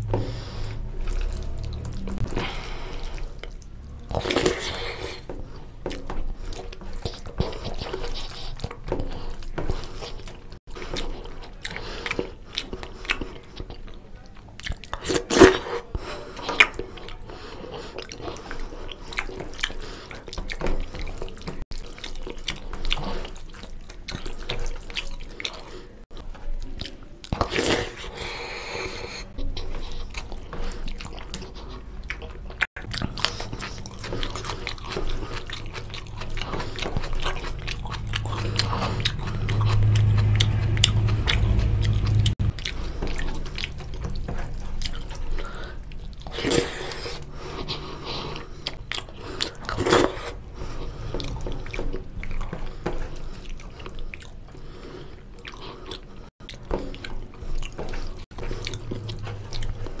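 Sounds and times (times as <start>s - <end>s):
wet chewing and mouth smacks: 0.0s - 60.0s
low hum: 37.1s - 45.8s.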